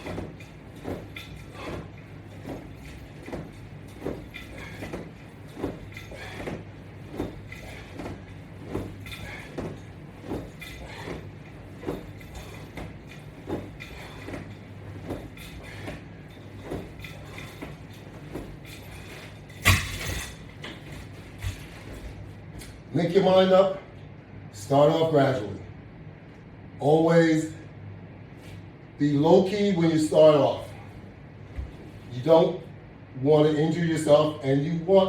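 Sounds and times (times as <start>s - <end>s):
workout rig knocking and creaking: 0.0s - 22.9s
steady low hum: 0.0s - 35.0s.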